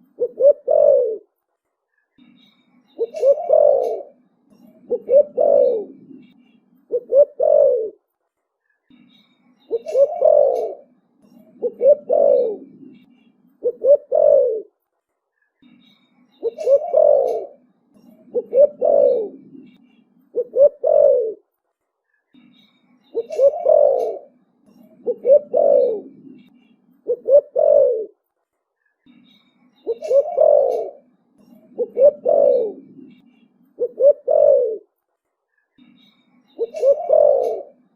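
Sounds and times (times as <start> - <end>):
dove cooing: 0.0 - 1.3, 3.0 - 8.0, 9.7 - 14.7, 16.4 - 21.4, 23.1 - 28.2, 29.8 - 33.2, 33.8 - 34.9, 36.6 - 37.9.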